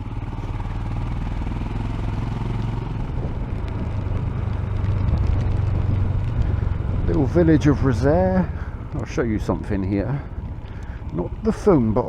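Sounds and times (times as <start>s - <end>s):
motorcycle engine running: 0.0s - 12.0s
road noise: 0.0s - 12.0s
wind noise: 2.9s - 12.0s.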